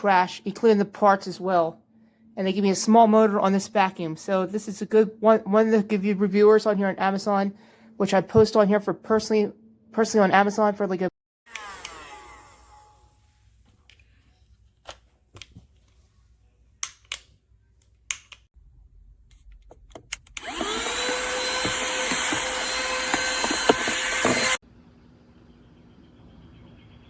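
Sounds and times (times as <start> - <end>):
handheld vacuum motor whine: 11.5 - 13.2, 20.4 - 24.6.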